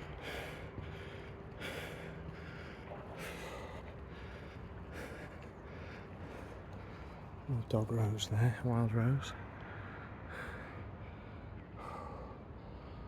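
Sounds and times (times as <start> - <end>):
man breathing hard: 0.0 - 7.4, 9.4 - 13.0.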